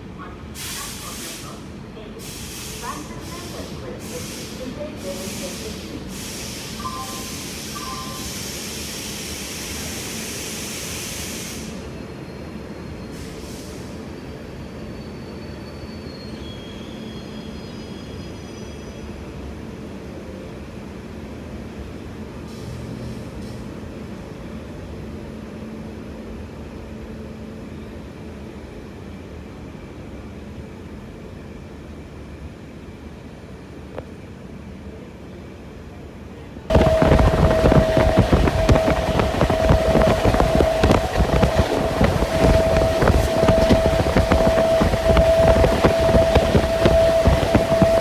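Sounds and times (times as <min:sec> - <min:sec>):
train rumbling on rails: 0:00.0 - 0:48.0
faint high wheel squeal: 0:12.1 - 0:19.2, 0:36.7 - 0:48.0.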